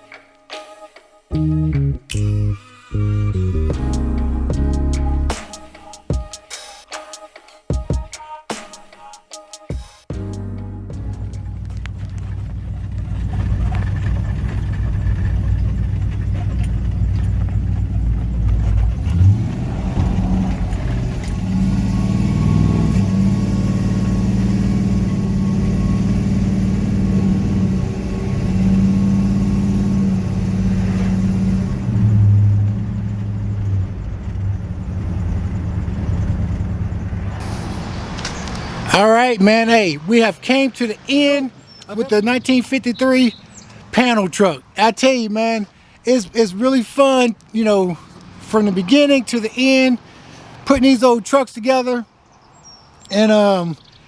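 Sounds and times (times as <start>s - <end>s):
vehicle engine revving: 1.4s - 5.6s, 10.2s - 39.1s.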